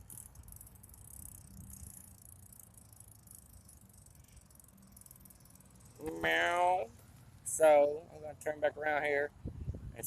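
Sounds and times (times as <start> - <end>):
faint high rattle and hiss: 0.0 - 9.2.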